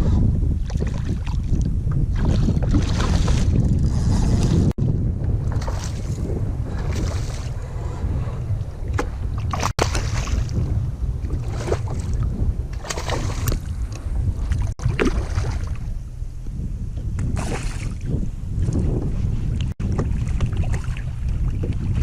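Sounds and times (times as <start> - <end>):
wind buffeting microphone: 0.0 - 22.0
water splashing against kayak: 0.6 - 4.7, 5.4 - 16.0, 19.5 - 22.0.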